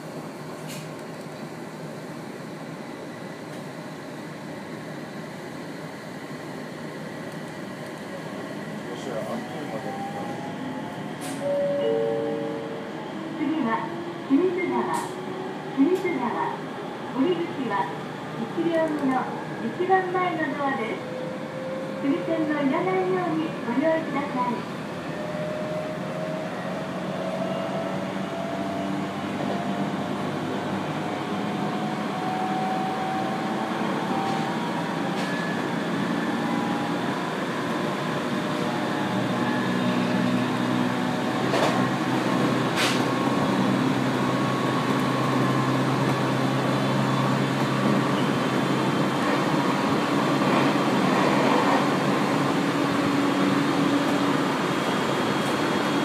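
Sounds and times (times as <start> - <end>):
train wheels rumbling on rails: 24.8 - 56.0.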